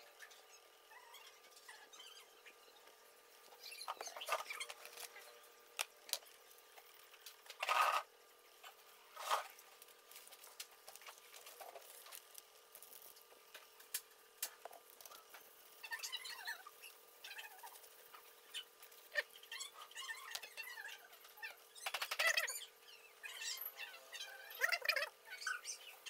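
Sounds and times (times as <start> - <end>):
plastic parts clicking and scraping: 7.2 - 8.0.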